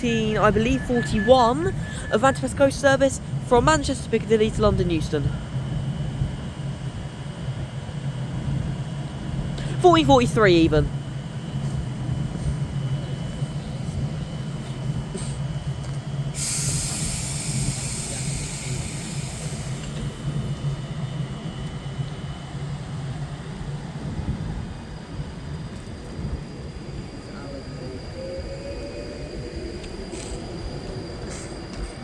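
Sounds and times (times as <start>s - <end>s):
electric train traction hum: 0.0s - 32.0s.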